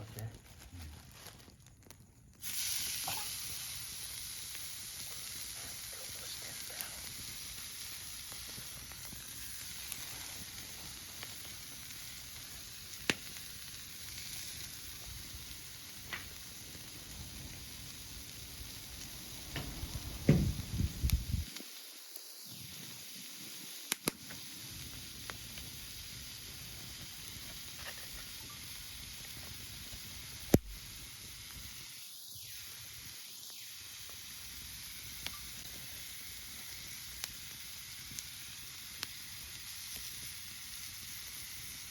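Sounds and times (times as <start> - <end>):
fire crackling and popping: 0.0 - 41.9
meat sizzling on a grill: 0.0 - 41.9
knocks: 19.6 - 20.6.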